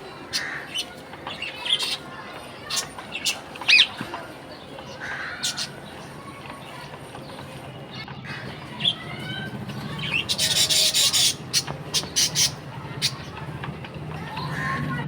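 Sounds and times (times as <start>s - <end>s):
budgerigar chirps: 5.0s - 5.8s, 10.0s - 13.2s.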